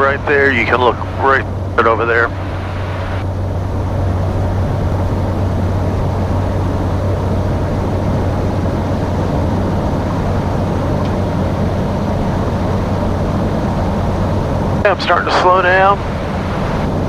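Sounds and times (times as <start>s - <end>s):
turboprop cockpit drone: 0.0s - 17.0s.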